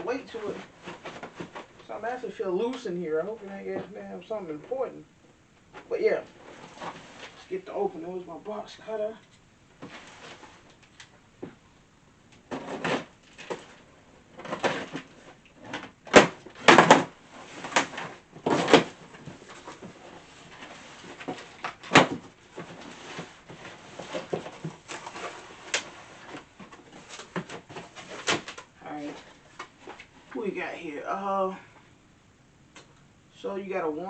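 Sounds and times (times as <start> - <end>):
box cutter ripping cardboard: 12.5 - 13.8, 14.4 - 19.8.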